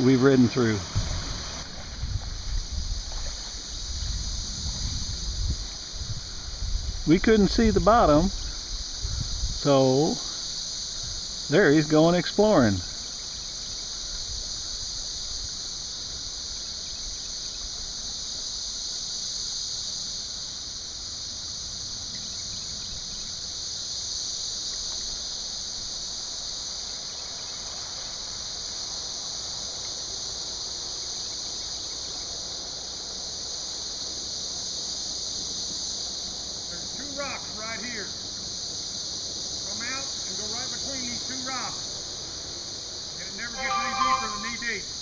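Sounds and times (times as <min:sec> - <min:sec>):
creek water rushing: 0:00.0 - 0:04.2, 0:43.3 - 0:45.0
buzzing insects: 0:00.0 - 0:45.0.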